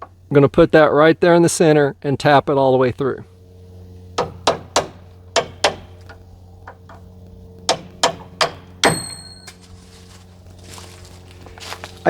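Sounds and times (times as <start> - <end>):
faint steady hum: 0.0 - 12.0
hammer striking metal: 7.7 - 9.7.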